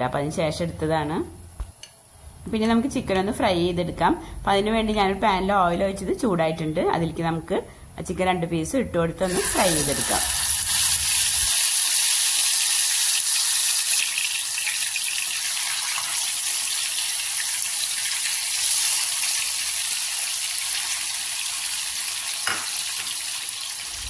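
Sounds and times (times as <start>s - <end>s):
chicken sizzling in hot oil: 9.3s - 24.0s.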